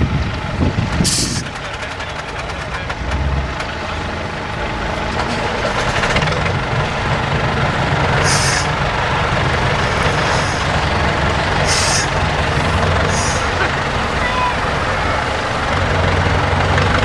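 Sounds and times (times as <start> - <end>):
truck diesel engine running: 0.0 - 17.0
air brake hiss: 1.1 - 1.4, 8.2 - 8.8, 9.8 - 10.8, 11.6 - 13.6.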